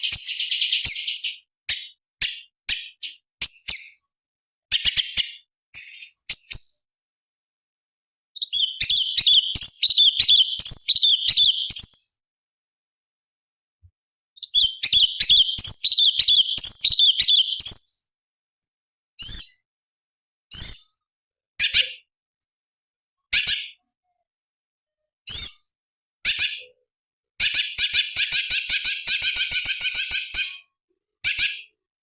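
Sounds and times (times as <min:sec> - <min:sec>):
bird chattering song: 0:00.0 - 0:04.1, 0:04.7 - 0:06.8, 0:08.4 - 0:12.2, 0:14.4 - 0:18.1.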